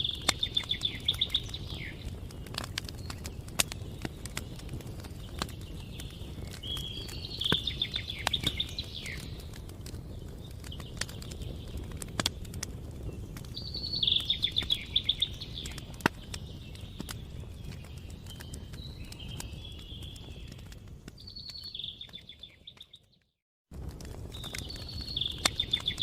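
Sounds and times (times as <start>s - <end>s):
bird singing trilled phrase: 0.0s - 2.1s, 5.2s - 9.5s, 13.6s - 20.6s, 24.6s - 26.0s
campfire crackling and popping: 0.0s - 26.0s.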